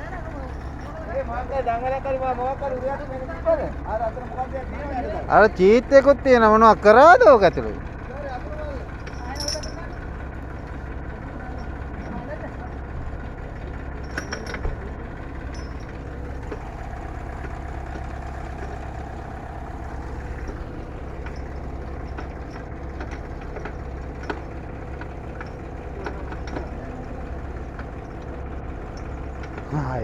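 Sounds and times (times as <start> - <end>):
tractor diesel engine idling: 0.0 - 30.0.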